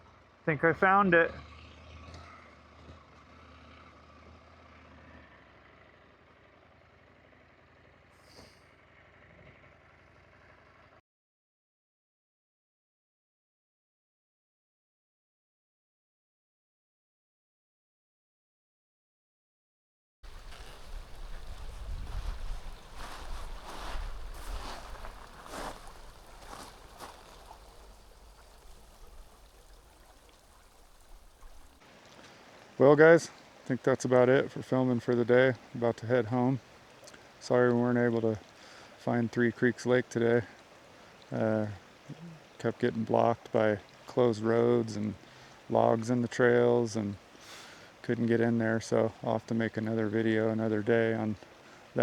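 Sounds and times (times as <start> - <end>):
motorcycle engine idling: 4.2 - 11.0
creek water trickling: 20.2 - 52.0
soft steady hiss: 20.2 - 52.0
wind rumble on microphone: 20.3 - 31.8.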